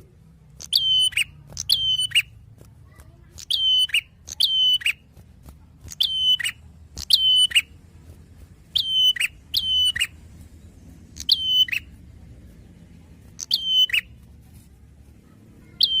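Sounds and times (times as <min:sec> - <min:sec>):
faint low hum: 0:00.0 - 0:16.0
bird calling: 0:00.6 - 0:02.4, 0:03.3 - 0:05.0, 0:05.8 - 0:07.8, 0:08.6 - 0:10.2, 0:11.1 - 0:12.0, 0:13.3 - 0:14.2, 0:15.6 - 0:16.0.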